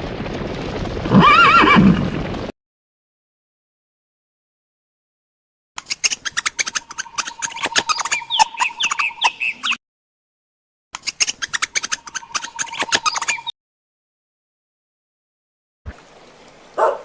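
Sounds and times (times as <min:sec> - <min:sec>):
birds squawking and chirping: 0:05.8 - 0:09.8, 0:11.0 - 0:13.5.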